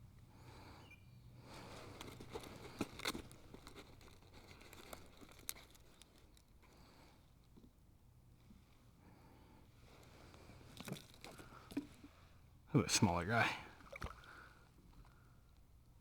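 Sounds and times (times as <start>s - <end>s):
rustling: 1.5s - 6.4s.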